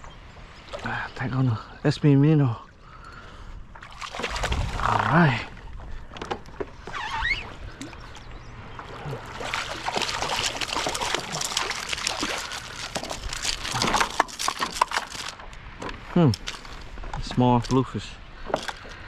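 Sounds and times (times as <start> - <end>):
water sloshing and dripping: 2.7 - 17.3
fish splashing and thrashing: 3.6 - 17.1, 18.4 - 19.0.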